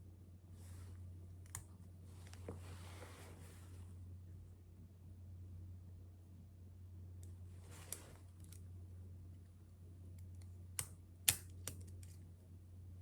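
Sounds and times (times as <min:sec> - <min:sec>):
soft rustle: 0:00.6 - 0:01.1, 0:02.0 - 0:04.0, 0:07.4 - 0:08.6
keystrokes and light clicks: 0:09.4 - 0:12.2.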